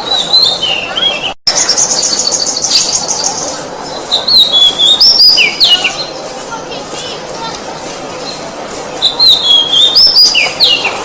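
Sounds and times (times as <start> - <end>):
bird singing whistled notes: 4.1 - 6.1, 9.0 - 10.9.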